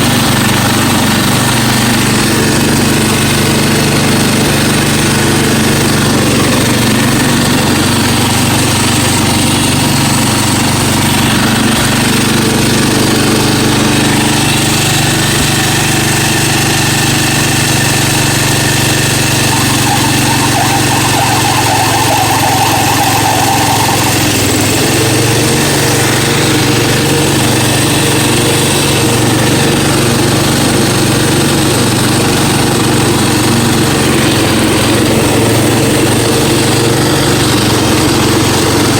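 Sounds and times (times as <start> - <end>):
riding mower engine running: 0.0 - 38.9.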